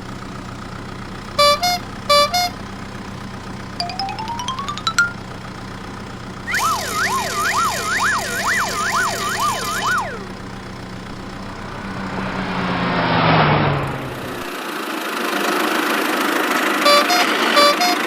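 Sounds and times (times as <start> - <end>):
low engine hum: 5.1 - 14.8
emergency siren wailing: 6.5 - 10.5.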